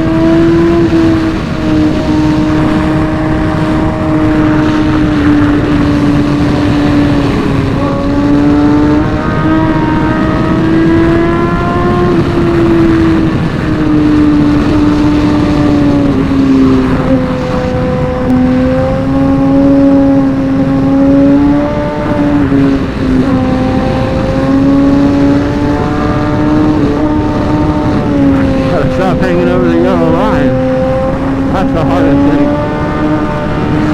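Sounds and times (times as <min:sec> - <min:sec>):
low rushing noise: 0:00.0 - 0:33.9
motorcycle engine at high revs: 0:00.0 - 0:33.9.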